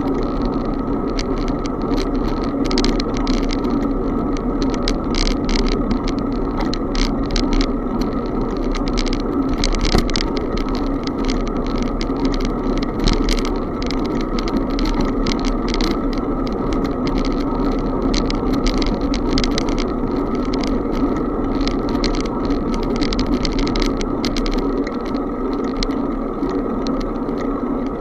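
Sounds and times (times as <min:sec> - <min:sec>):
bicycle rattles and clicks: 0:00.0 - 0:28.0
wind and tyre noise: 0:00.0 - 0:28.0.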